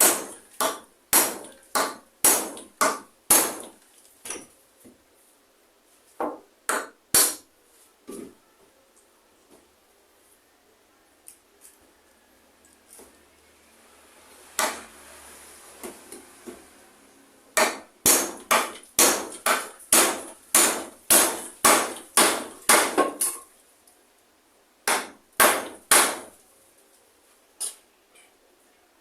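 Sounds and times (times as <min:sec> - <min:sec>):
hammer strikes: 0:00.0 - 0:04.4, 0:06.2 - 0:07.5, 0:14.5 - 0:15.0, 0:17.6 - 0:23.4, 0:24.8 - 0:26.3.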